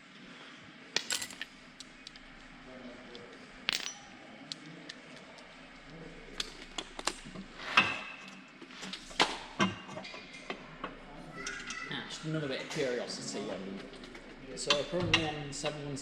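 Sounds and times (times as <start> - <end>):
metal tools clinking: 1.0 - 1.5, 3.6 - 4.2.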